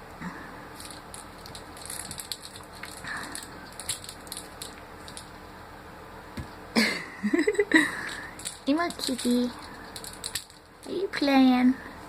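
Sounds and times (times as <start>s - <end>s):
toy clicks and scuffs: 0.8s - 5.3s, 8.0s - 11.1s.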